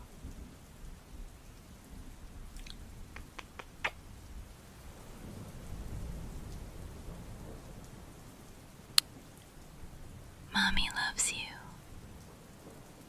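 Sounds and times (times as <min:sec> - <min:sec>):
faint steady rain: 0:00.0 - 0:13.0
close kiss lip clicks: 0:02.6 - 0:04.0.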